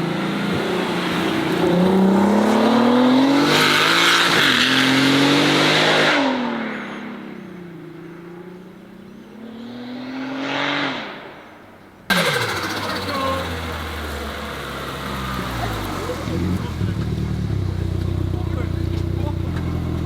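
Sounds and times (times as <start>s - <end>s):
engine revving: 0.0s - 6.8s, 12.1s - 20.0s
car accelerating hard: 0.0s - 11.3s, 12.1s - 20.0s.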